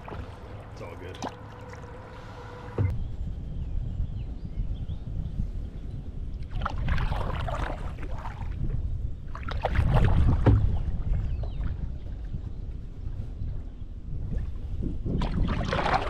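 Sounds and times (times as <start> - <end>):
paddle splashing in water: 0.0 - 2.9, 6.5 - 8.6, 9.3 - 12.2, 15.2 - 16.0
wind rumble on microphone: 0.0 - 16.0.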